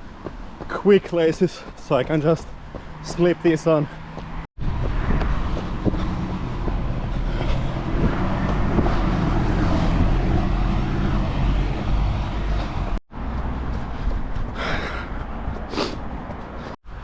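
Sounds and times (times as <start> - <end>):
road traffic: 0.0 - 17.0
wind rumble on microphone: 4.6 - 16.6.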